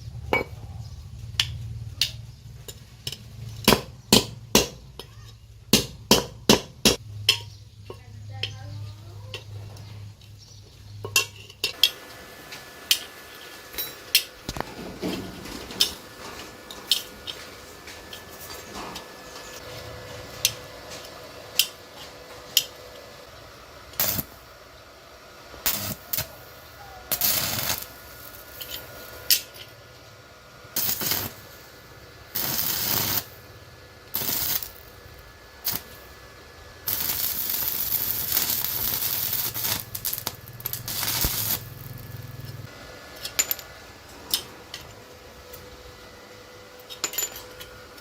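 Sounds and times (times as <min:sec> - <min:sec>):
hissing bursts: 0:25.6 - 0:28.7, 0:30.7 - 0:36.2, 0:36.8 - 0:42.5.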